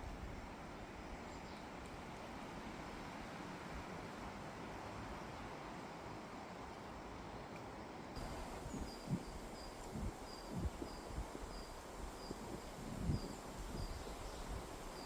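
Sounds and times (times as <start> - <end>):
wind rushing through trees: 0.0 - 15.0
wind gusts buffeting microphone: 8.2 - 15.0.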